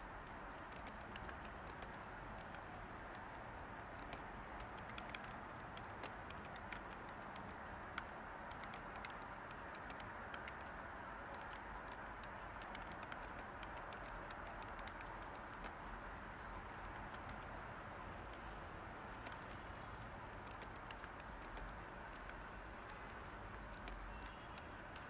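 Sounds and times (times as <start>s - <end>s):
white noise hiss: 0.0s - 25.0s
keyboard typing: 0.2s - 15.8s, 16.8s - 17.6s, 19.1s - 25.0s.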